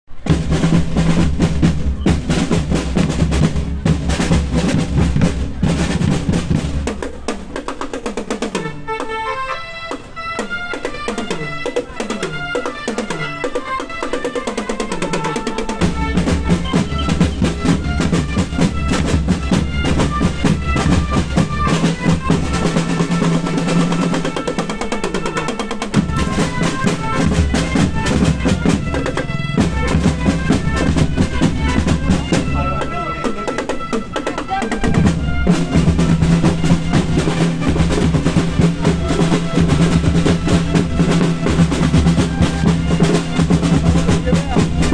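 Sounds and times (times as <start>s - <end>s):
bass drums: 0.1s - 7.6s, 15.8s - 24.4s, 25.9s - 33.0s, 34.5s - 44.9s
snare drum rolls: 0.1s - 9.2s, 10.0s - 44.9s
marching band playing: 0.1s - 44.9s.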